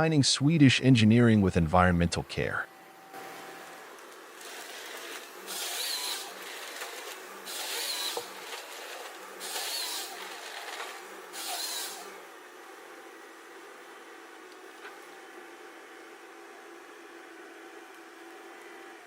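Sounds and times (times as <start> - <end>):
machine humming: 0.0 - 19.0
harsh saw-like bursts: 2.9 - 12.6.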